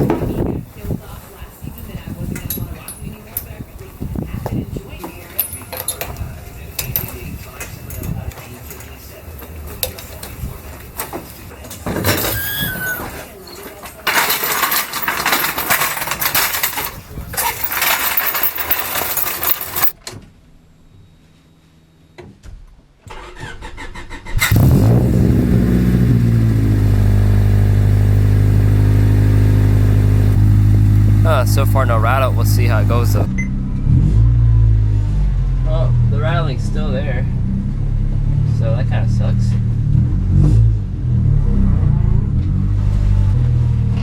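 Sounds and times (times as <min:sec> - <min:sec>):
handling noise: 0:02.4 - 0:20.2
car engine starting and idling: 0:23.1 - 0:44.0.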